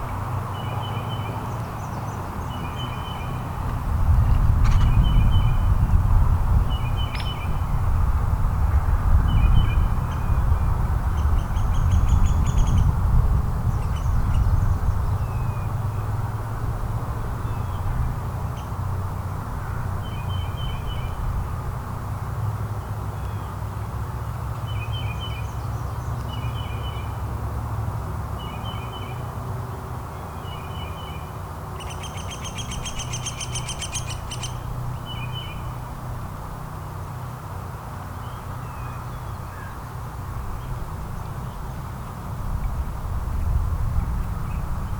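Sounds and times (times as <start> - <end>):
bird chirps: 31.8 - 35.6.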